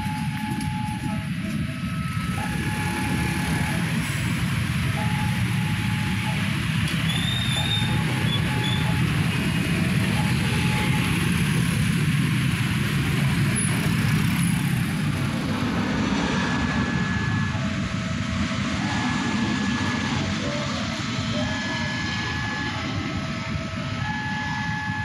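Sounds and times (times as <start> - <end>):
train rumbling: 0.0 - 25.0
high squeals: 7.0 - 9.0.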